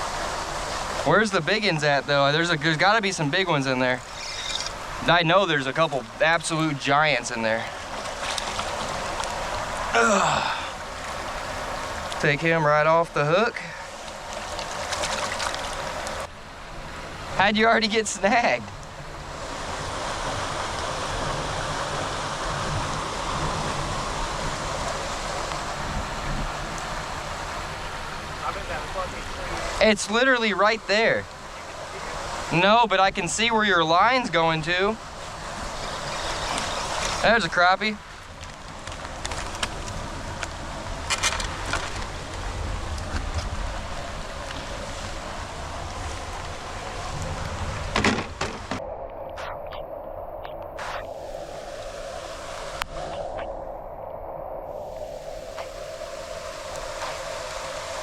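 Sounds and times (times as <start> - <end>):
floodwater rushing: 0.0 - 58.0
floodwater rushing from drain: 13.7 - 16.3
wind buffeting microphone: 18.8 - 29.8, 38.1 - 58.0.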